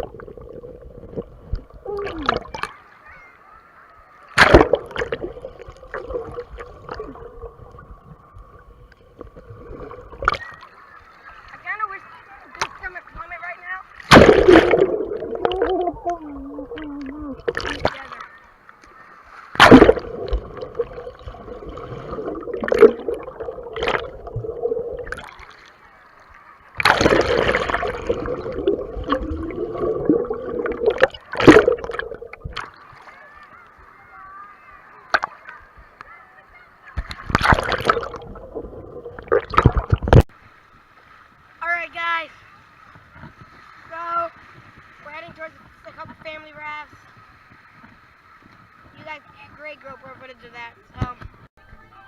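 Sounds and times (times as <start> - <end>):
muffled water sloshing and splashing: 0.0 - 2.8, 4.3 - 13.3, 13.9 - 33.7, 36.9 - 41.4
indistinct voices: 14.5 - 25.1.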